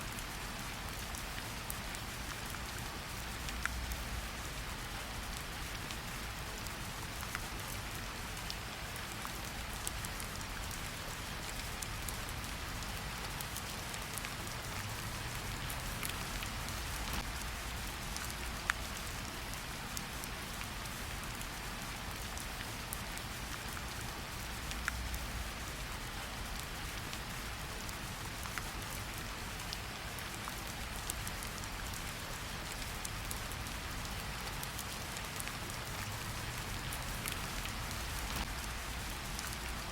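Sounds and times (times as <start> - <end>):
rain falling: 0.0 - 39.9
raindrops ticking: 11.5 - 19.2, 32.7 - 39.9.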